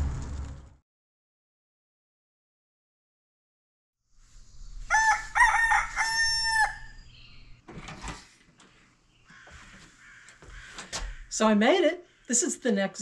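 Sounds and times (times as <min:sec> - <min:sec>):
rooster crowing: 0:04.9 - 0:07.1.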